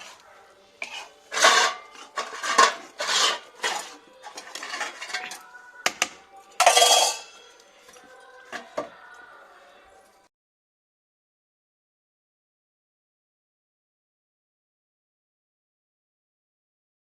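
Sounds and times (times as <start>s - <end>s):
metal utensil scraping cooking pot: 0.0s - 0.2s, 0.8s - 7.6s.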